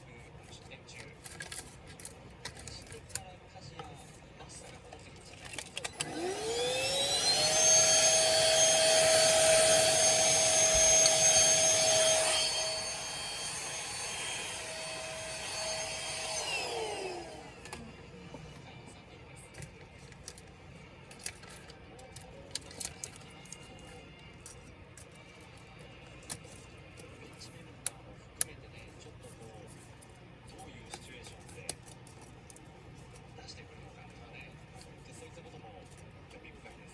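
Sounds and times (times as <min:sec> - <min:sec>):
electric fan motor whine: 0:05.6 - 0:28.8.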